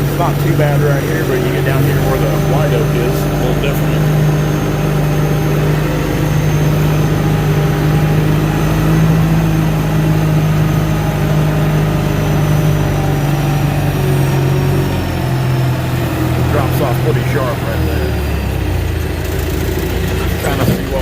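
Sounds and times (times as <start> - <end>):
heavy diesel engine humming: 0.0 - 21.0.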